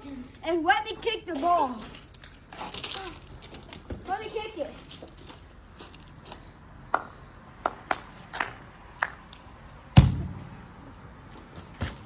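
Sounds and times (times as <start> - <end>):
heavy thump of football kick: 10.0 - 10.5.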